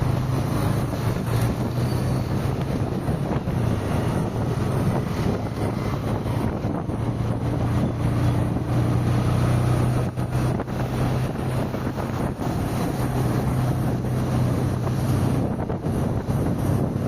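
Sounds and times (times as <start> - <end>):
car engine hum: 0.0 - 17.0
tyre and wind noise: 0.0 - 17.0.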